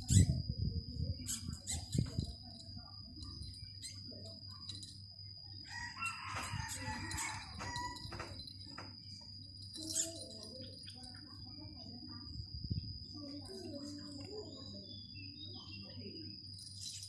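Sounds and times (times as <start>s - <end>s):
rooster crowing: 5.6s - 8.4s.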